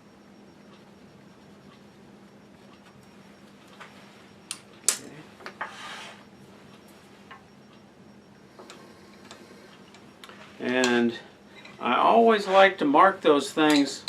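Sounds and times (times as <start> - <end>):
faint steady hum: 0.0 - 14.0
scratchy scrape: 5.6 - 6.2.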